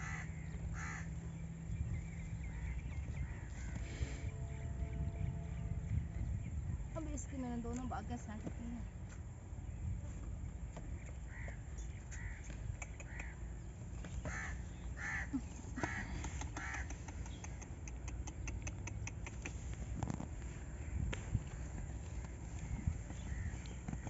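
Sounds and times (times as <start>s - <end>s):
bird calling harshly: 14.2s - 17.7s.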